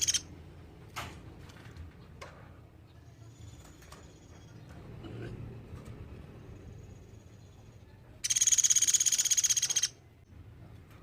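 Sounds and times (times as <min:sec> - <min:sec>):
woodpecker calls: 0:00.0 - 0:00.3, 0:08.2 - 0:10.0.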